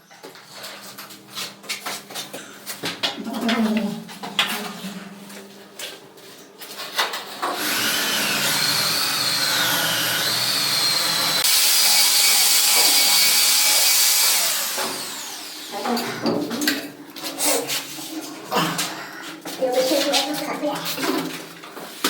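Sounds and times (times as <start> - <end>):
power tool whining: 7.4 - 16.3.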